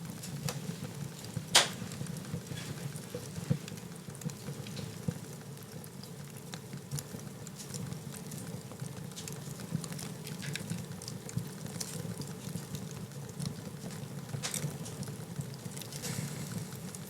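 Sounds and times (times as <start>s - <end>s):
low rumble of flames: 0.0s - 17.0s
wood fire crackling and popping: 0.0s - 17.0s.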